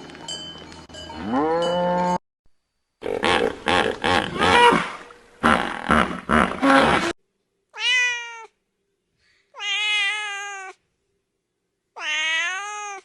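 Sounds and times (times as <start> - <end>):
cat meowing: 7.8 - 8.5, 9.6 - 10.8, 12.0 - 13.0.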